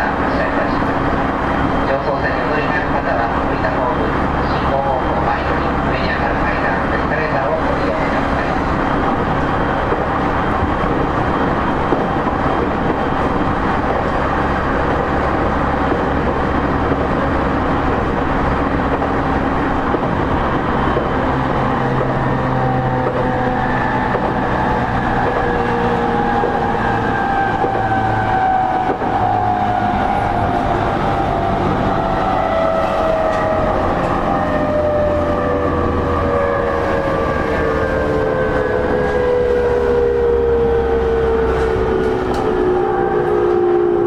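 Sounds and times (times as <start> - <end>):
wheel and rail rumble: 0.0 - 44.0.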